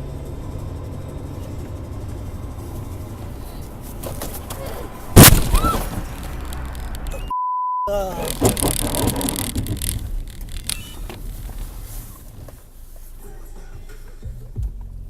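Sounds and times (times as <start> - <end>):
steady vehicle noise: 0.0 - 15.0
scattered clicks: 6.1 - 7.3, 8.1 - 11.6
censor bleep: 7.1 - 8.2, 10.7 - 11.1.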